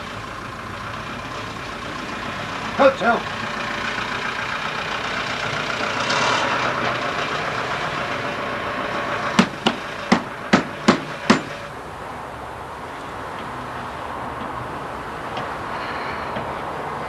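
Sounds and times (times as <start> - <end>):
road traffic noise: 0.0 - 17.0
vehicle passing: 0.0 - 17.0
sharp knocks: 9.4 - 11.6.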